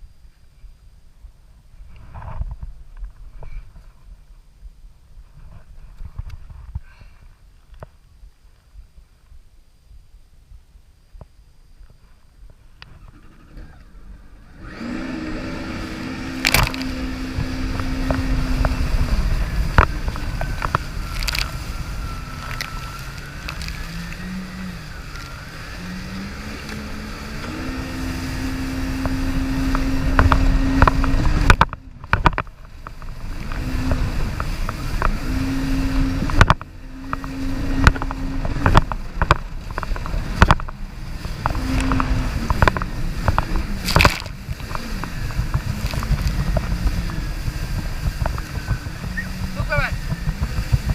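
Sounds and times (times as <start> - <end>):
jet ski engine running: 12.6 - 50.9
loud low rush: 14.0 - 50.9.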